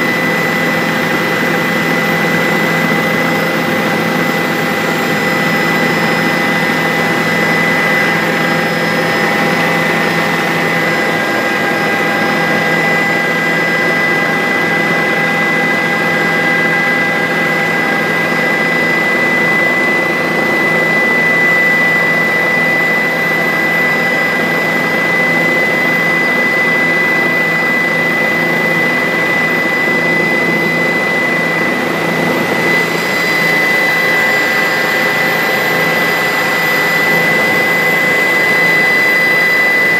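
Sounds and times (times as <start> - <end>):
helicopter turbine whine: 0.0 - 39.9.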